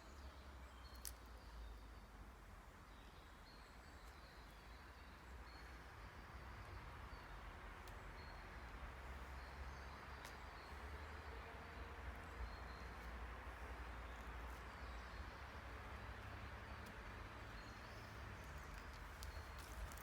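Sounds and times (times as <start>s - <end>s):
faint ticks: 18.5s - 20.0s.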